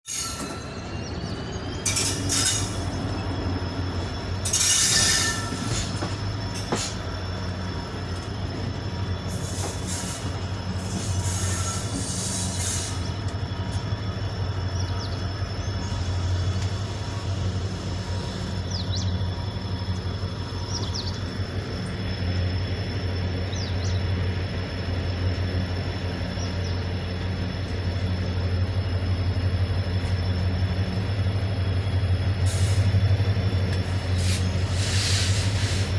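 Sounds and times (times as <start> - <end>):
train rumbling on rails: 0.0 - 35.9
high wheel squeaks: 0.1 - 19.2.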